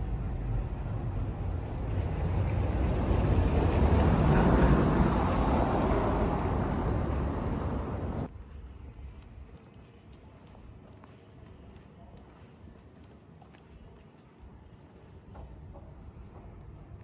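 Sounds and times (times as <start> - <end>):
motor vehicle passing by: 0.1 - 8.3.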